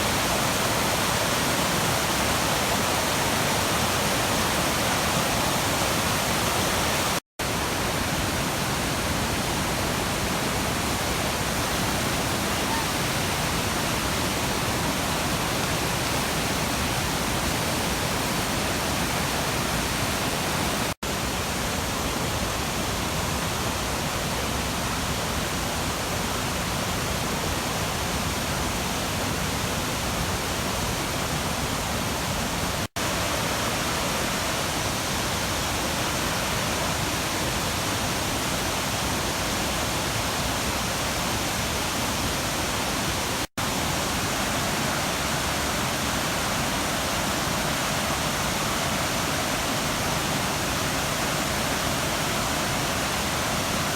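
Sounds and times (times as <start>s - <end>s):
waterfall and river rapids rushing: 0.0s - 53.9s.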